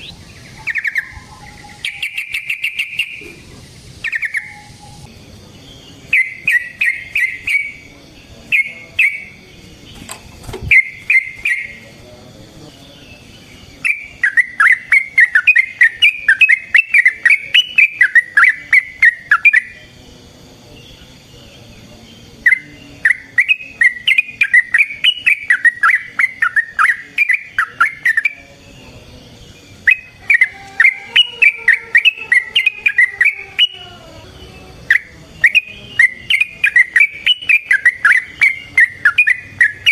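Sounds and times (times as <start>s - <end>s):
bulbul singing warbling notes: 0.0s - 5.2s, 6.1s - 7.9s, 29.9s - 39.9s.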